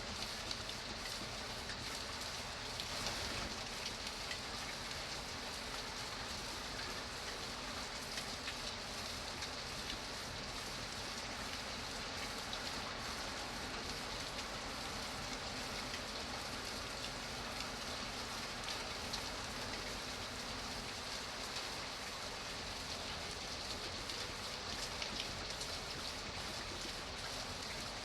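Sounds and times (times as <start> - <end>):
steady rain patter: 0.0 - 28.0.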